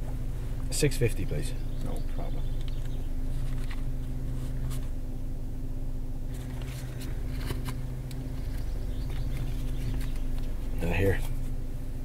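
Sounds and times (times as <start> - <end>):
car engine idling: 0.0 - 12.0
wallet rustling and clicking: 2.6 - 4.9, 6.3 - 10.6.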